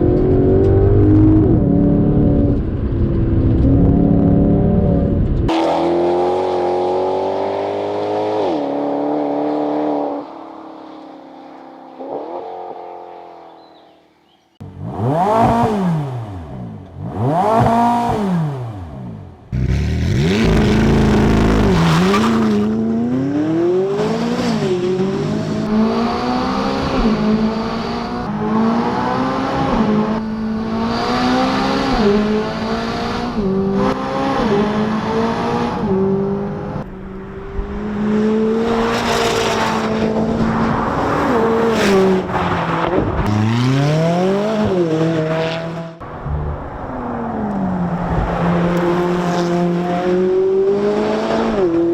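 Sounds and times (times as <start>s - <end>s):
sports car engine accelerating: 14.6s - 51.9s.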